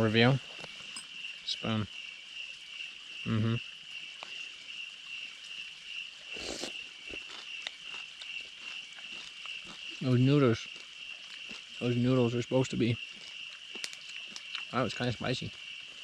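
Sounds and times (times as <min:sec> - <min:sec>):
crickets chirping: 0:00.0 - 0:16.0
voiced murmur: 0:03.2 - 0:03.6.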